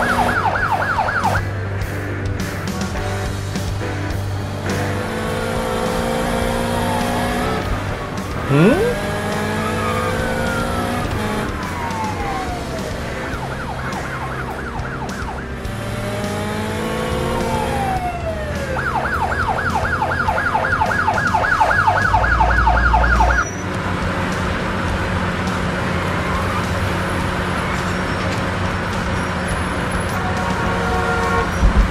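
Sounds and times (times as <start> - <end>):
cartoon siren wailing: 8.5 - 9.0.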